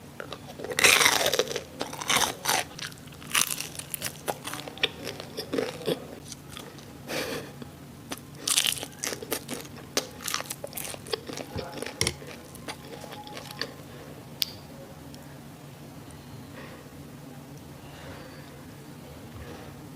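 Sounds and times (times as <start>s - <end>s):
chewing crispy food crunches: 0.2s - 6.9s, 8.1s - 13.8s.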